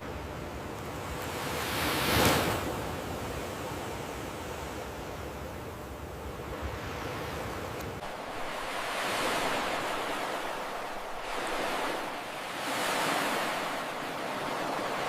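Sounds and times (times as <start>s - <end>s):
ocean waves breaking: 6.4s - 15.0s.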